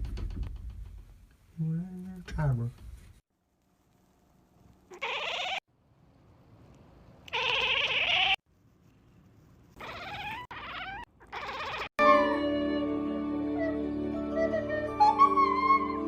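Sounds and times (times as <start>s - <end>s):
animal squealing: 4.9s - 5.6s, 7.3s - 8.4s, 9.8s - 12.0s
music: 12.0s - 16.0s.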